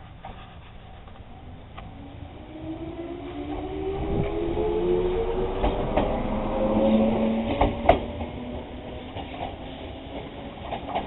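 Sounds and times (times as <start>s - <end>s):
electric railcar motor whine: 1.1s - 11.0s
wheels clacking over rail joints: 5.5s - 11.0s.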